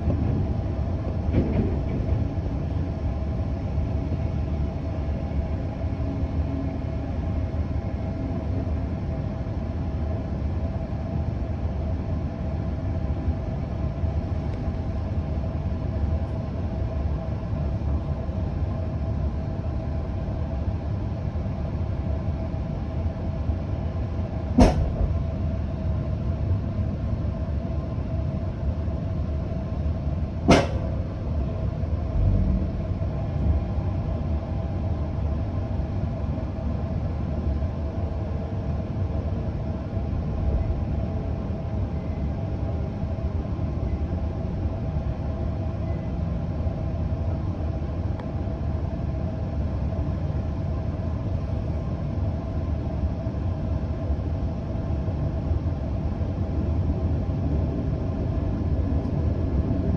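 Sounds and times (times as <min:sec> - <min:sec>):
train rumbling: 0:00.0 - 0:59.9
sharp knocks: 0:30.5 - 0:31.0.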